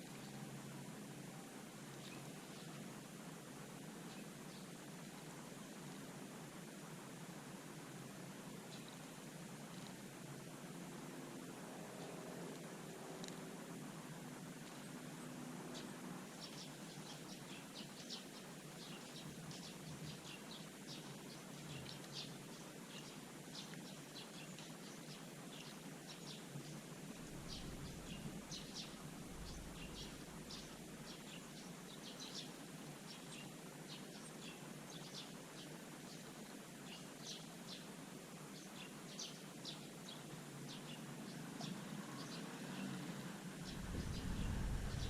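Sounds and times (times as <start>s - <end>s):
background hiss: 0.0s - 45.0s
small birds chirping: 8.5s - 10.1s, 14.6s - 45.0s.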